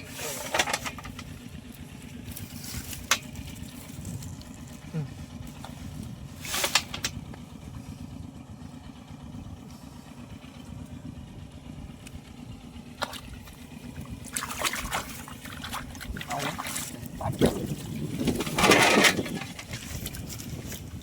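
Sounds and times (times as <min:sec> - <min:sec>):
small engine running: 0:00.0 - 0:21.0
water splashing: 0:13.0 - 0:18.5.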